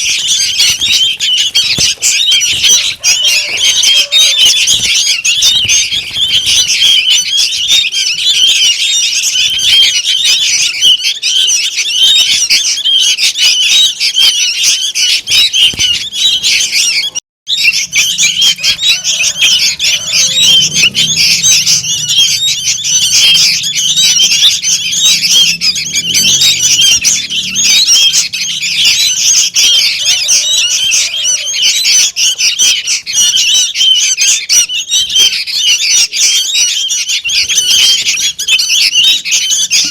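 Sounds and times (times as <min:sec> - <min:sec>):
young bulbuls chirping in chorus: 0:00.0 - 0:39.9.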